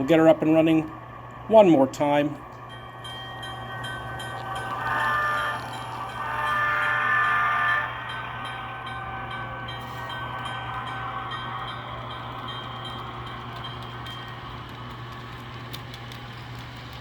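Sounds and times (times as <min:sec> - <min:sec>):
locomotive horn chord: 0:04.5 - 0:11.0
light regular clicking: 0:12.8 - 0:17.0.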